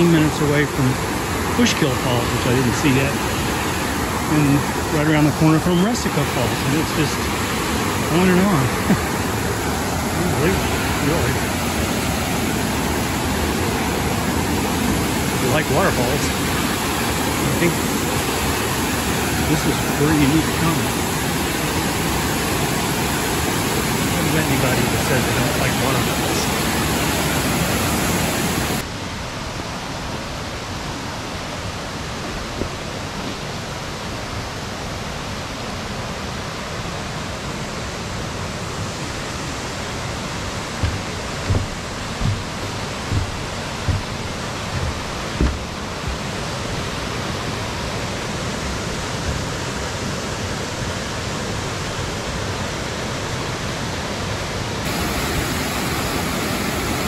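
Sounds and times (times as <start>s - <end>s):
waterfall rushing: 0.0s - 28.9s, 30.8s - 57.0s
soft low thumps: 40.7s - 46.4s.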